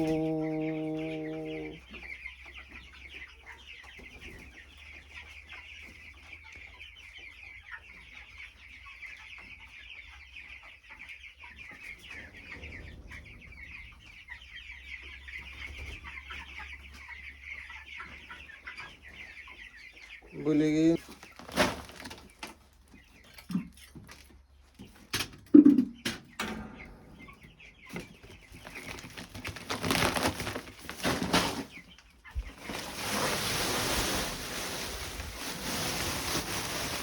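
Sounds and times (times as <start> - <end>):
chickens peeping: 0.0 - 37.0.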